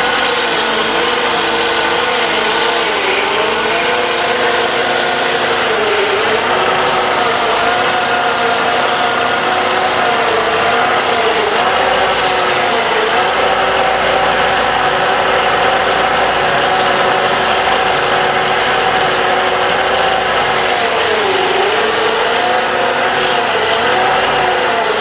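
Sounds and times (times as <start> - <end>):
wood lathe rattling: 0.0 - 25.0.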